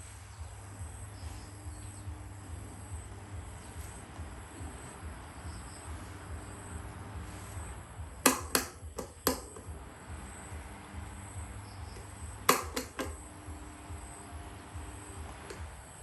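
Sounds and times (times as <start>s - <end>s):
steady low hum: 0.0s - 16.0s
sharp clicks or taps: 8.2s - 9.7s, 12.0s - 13.2s.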